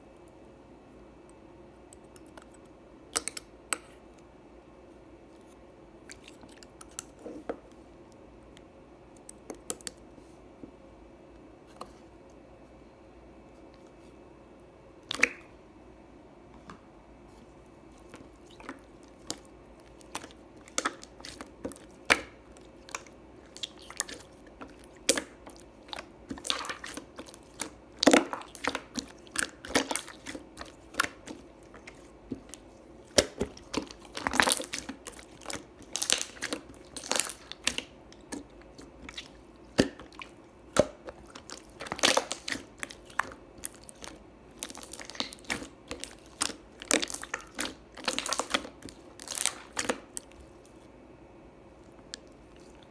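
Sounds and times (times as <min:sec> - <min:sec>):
hands squeezing slime: 0:17.9 - 0:50.8.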